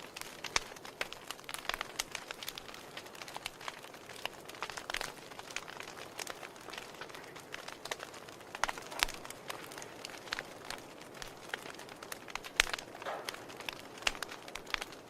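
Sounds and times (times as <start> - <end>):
flames hissing: 0.0 - 15.0
wood fire crackling and popping: 0.0 - 15.0.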